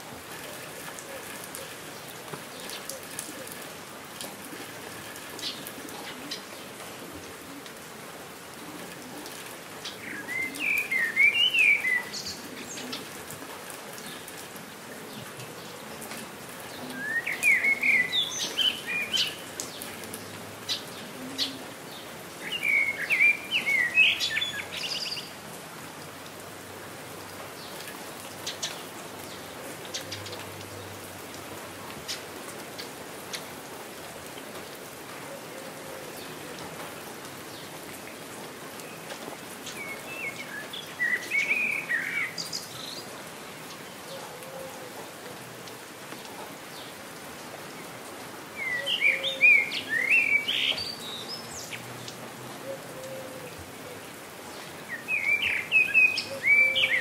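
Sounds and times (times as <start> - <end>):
steady rain falling: 0.0 - 57.0
songbird chirping: 9.8 - 13.1, 16.8 - 25.4, 37.5 - 44.3, 48.6 - 53.2, 54.2 - 57.0.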